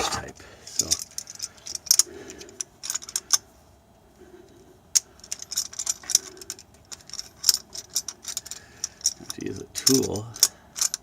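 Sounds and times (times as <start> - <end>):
metal hand tools clinking: 5.2 - 11.0.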